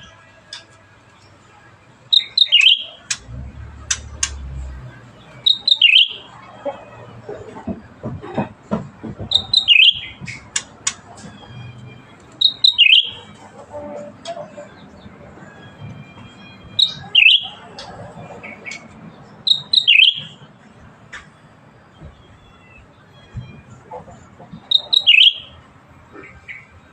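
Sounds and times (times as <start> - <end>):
bulbul singing: 0.0 - 6.8, 9.2 - 13.6, 14.2 - 23.7, 24.5 - 26.7
bird chips: 2.1 - 4.5, 5.4 - 6.3, 9.3 - 11.4, 12.3 - 13.4, 19.5 - 20.3, 24.6 - 25.6.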